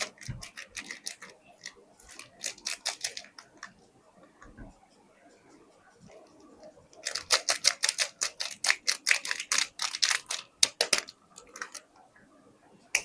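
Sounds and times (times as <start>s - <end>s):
crackling packaging clicks: 0.0s - 3.8s, 7.0s - 11.9s.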